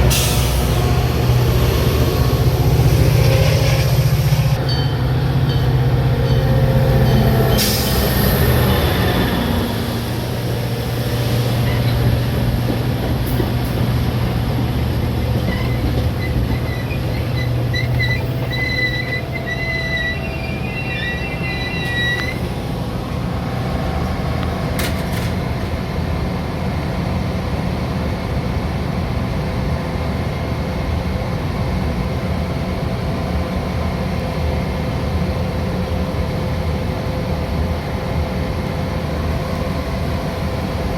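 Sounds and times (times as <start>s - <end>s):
train rolling rumble: 0.0s - 40.9s
high-pitched wheel squeal: 15.4s - 22.6s.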